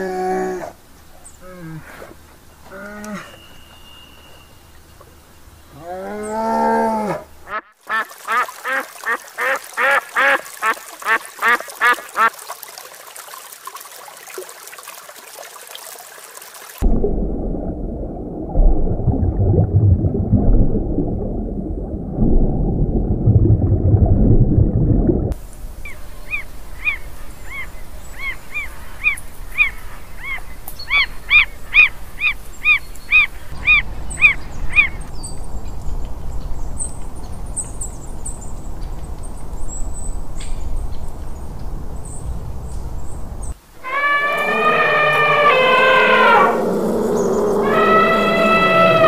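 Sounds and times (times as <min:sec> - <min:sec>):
faint high chirps: 0:03.2 - 0:04.8
rushing water: 0:07.2 - 0:41.9, 0:43.4 - 0:49.0.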